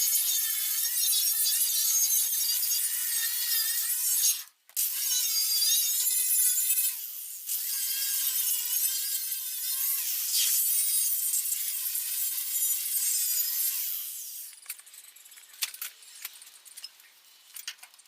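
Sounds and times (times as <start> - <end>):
angle grinder grinding metal: 0.0 - 17.0.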